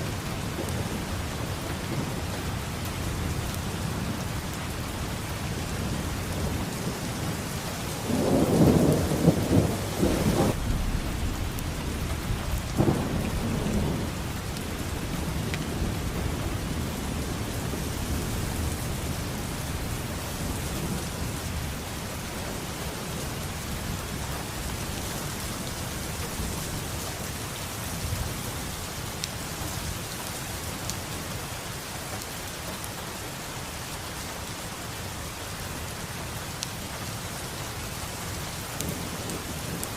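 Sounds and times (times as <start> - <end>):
thunder crack and rumble: 0.0 - 26.8, 38.8 - 39.9
steady rain: 0.0 - 39.9.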